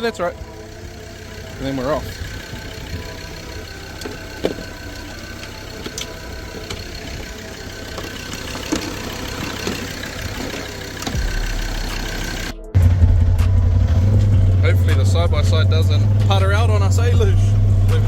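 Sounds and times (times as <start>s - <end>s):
utility vehicle engine idling: 0.0s - 18.0s.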